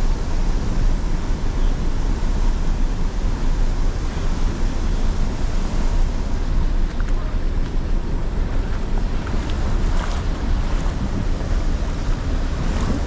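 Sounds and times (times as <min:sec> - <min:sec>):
river water rushing: 0:00.0 - 0:13.0
wind buffeting microphone: 0:00.0 - 0:13.0.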